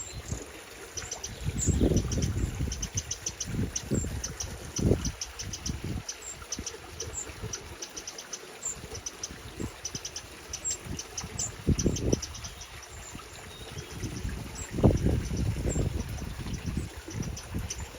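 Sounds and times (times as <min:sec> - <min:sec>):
wrens ticking and chirping: 0:00.0 - 0:17.9.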